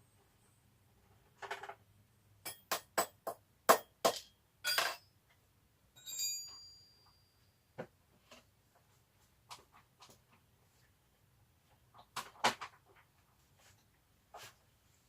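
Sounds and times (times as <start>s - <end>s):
metal tools clinking: 4.6s - 5.1s.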